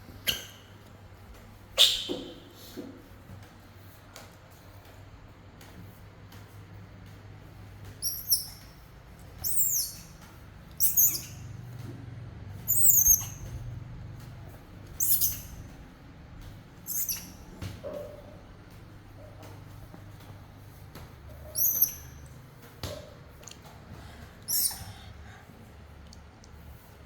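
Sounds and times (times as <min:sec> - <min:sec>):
baby monkey squeaking: 0:00.3 - 0:00.7, 0:01.8 - 0:02.3, 0:08.0 - 0:08.8, 0:09.4 - 0:11.6, 0:12.6 - 0:13.6, 0:14.9 - 0:15.8, 0:16.8 - 0:17.6, 0:21.4 - 0:22.3, 0:24.5 - 0:25.0.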